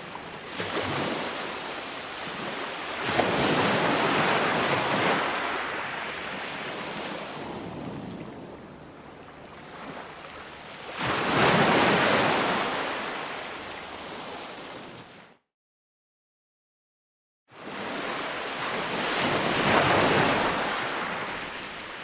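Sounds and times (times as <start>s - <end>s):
ocean wave breaking: 0.0s - 15.1s.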